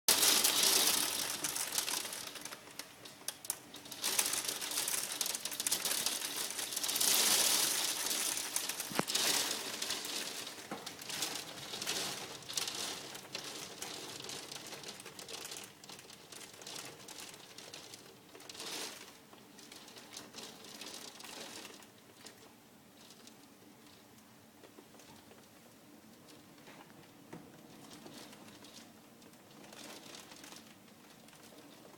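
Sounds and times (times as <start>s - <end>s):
hailstones pelting down: 0.1s - 23.5s.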